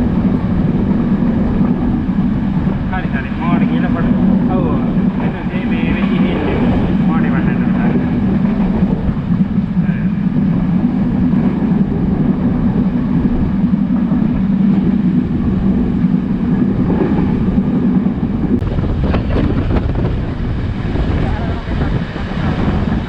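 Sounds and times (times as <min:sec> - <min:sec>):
train power unit droning: 0:00.0 - 0:23.0
wheels rumbling on rail: 0:00.0 - 0:23.0.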